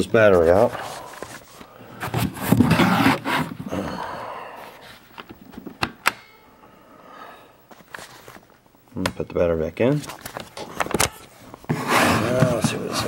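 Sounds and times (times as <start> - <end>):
plastic scraping and rubbing: 0.0 - 3.7, 10.0 - 13.0.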